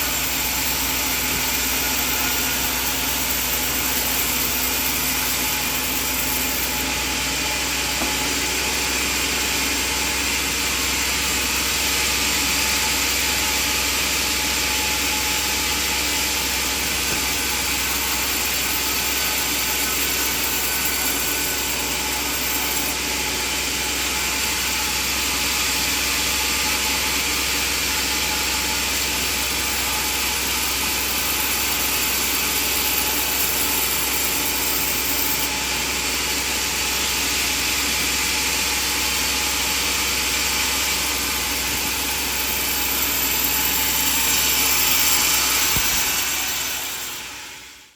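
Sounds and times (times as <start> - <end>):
band sawmill running: 0.0 - 47.9.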